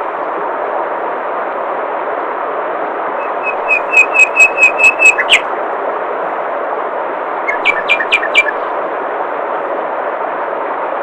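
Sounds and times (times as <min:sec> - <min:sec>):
songbird calling: 0:03.2 - 0:05.4, 0:07.5 - 0:08.6.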